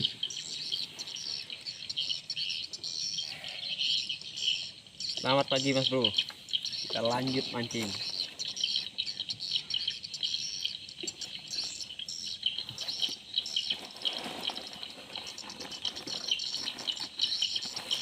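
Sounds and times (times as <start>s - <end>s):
insects trilling: 0.0s - 18.0s
small birds chirping: 0.0s - 18.0s
soft noisy rustle: 12.6s - 18.0s.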